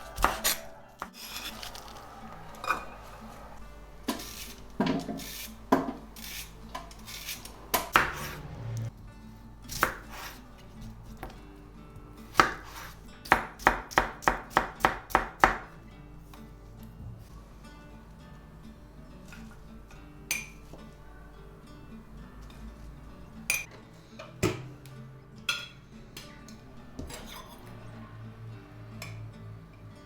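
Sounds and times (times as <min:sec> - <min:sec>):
knife chopping on cutting board: 0:00.2 - 0:01.4, 0:07.1 - 0:08.5, 0:09.7 - 0:10.4, 0:12.3 - 0:15.7.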